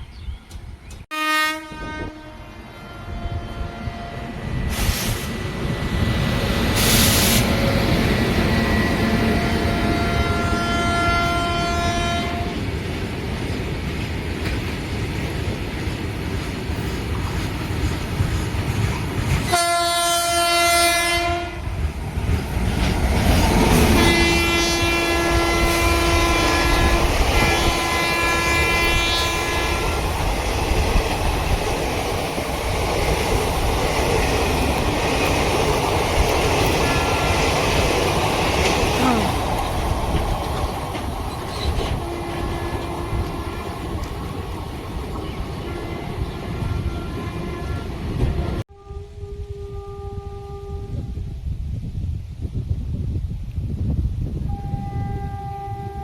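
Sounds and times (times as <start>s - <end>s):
train rumbling on rails: 0.0s - 56.0s
locomotive horn blasts: 1.1s - 4.4s, 9.0s - 12.6s, 19.5s - 21.7s, 23.8s - 30.2s, 41.9s - 43.8s, 45.6s - 51.3s, 54.5s - 56.0s.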